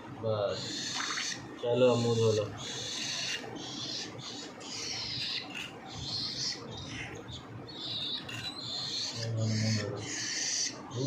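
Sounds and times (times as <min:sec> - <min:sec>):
parrot chicks raspy begging calls: 0:00.5 - 0:11.0.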